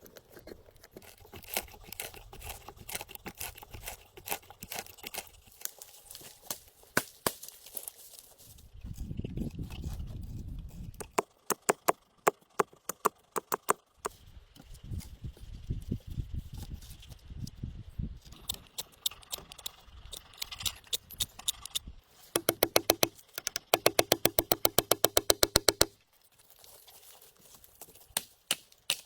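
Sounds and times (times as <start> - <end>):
rustling: 0.0 - 9.1, 26.0 - 28.2
sharp knocks: 22.4 - 25.9.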